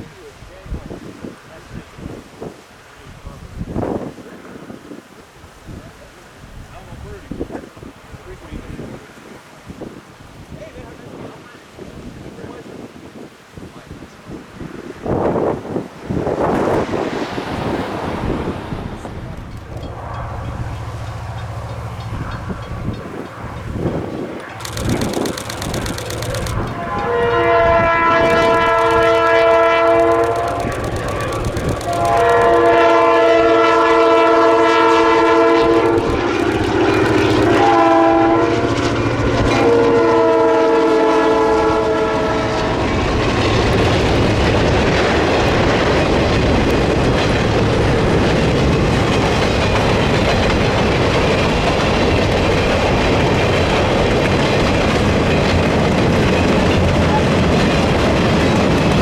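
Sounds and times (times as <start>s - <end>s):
train wheels clacking on rails: 19.0s - 38.0s, 43.0s - 59.0s
locomotive air horn blasts: 24.5s - 43.0s.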